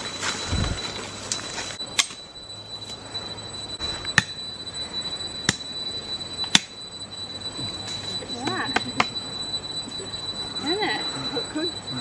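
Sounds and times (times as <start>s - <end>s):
sharp ringing knocks: 4.1s - 4.4s, 5.4s - 5.7s.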